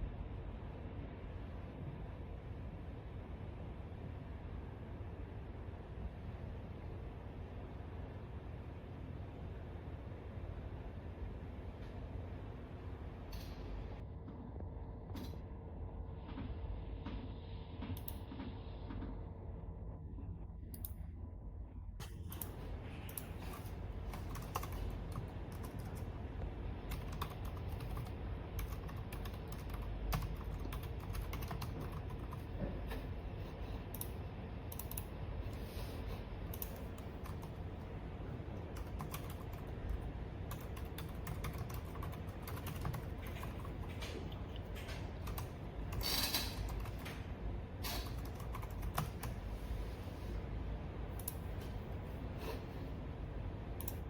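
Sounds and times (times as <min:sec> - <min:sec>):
low steady hum: 0:00.0 - 0:54.0
keyboard typing: 0:22.0 - 0:26.1, 0:26.9 - 0:32.6, 0:33.9 - 0:35.1, 0:36.5 - 0:37.7, 0:38.6 - 0:47.2, 0:47.9 - 0:49.4.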